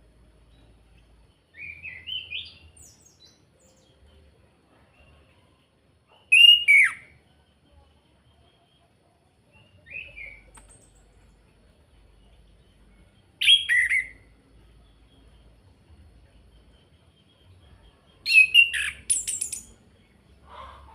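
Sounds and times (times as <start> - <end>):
thrush singing whistled phrases: 6.3 - 7.2, 13.4 - 14.3, 18.3 - 19.8.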